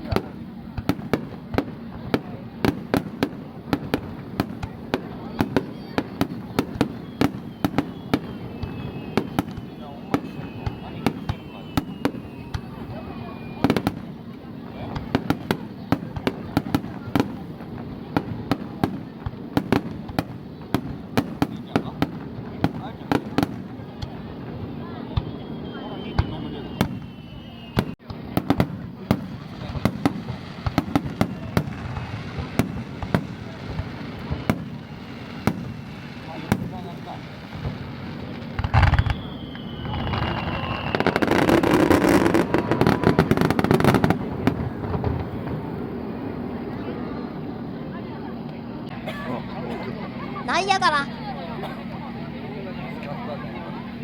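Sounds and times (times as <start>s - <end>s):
fireworks bangs: 0.0s - 47.3s.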